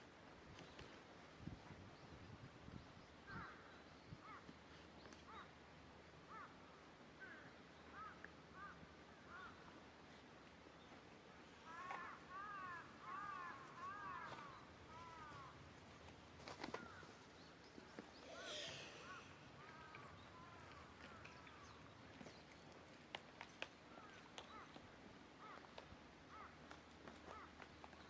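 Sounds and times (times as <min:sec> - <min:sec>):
faint bird chirps: 0:16.8 - 0:22.7.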